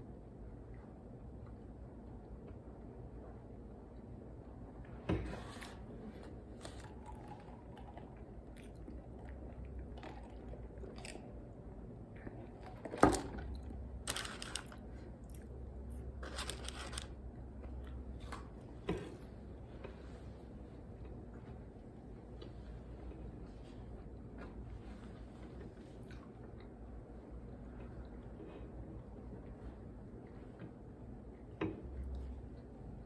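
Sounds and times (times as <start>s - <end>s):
person chewing food: 6.0s - 20.0s
crunching and rustling: 12.2s - 15.5s, 16.2s - 17.2s.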